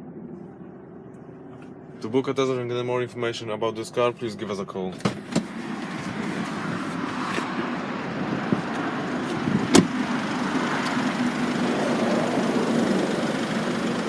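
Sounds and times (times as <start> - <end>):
vehicle engine running: 5.3 - 14.0.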